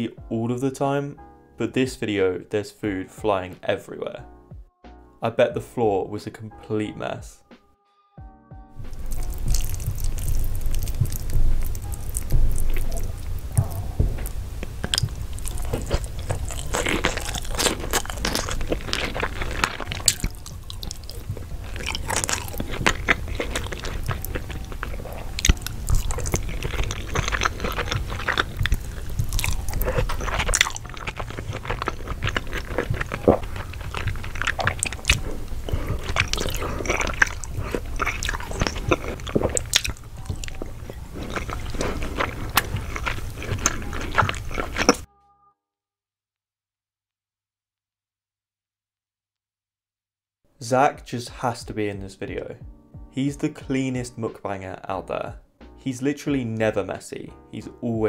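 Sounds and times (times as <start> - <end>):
wet chewing and crunching: 8.8 - 45.1.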